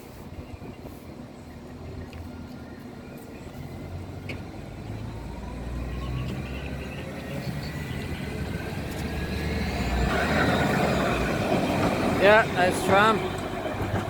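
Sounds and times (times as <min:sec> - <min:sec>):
tram rumble with rising whine: 0:00.0 - 0:14.0.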